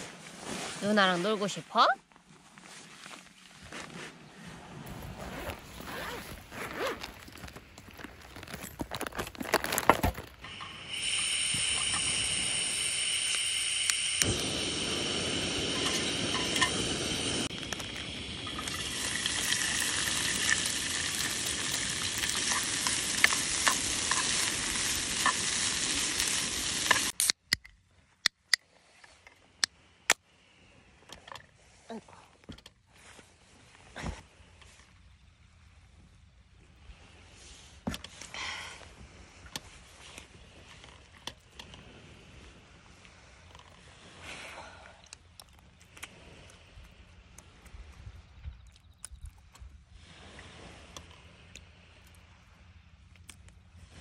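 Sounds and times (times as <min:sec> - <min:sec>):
food sizzling in a frying pan: 0:18.5 - 0:27.1.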